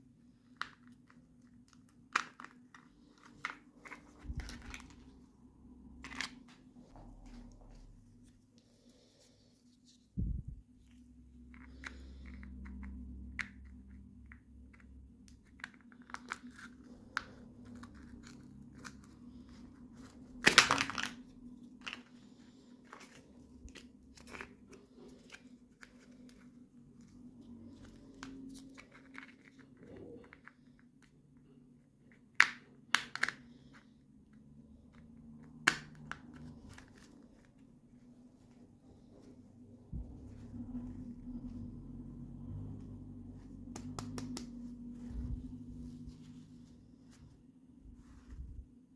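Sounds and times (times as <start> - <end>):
sharp plastic snaps: 32.3 - 33.7, 43.7 - 44.6.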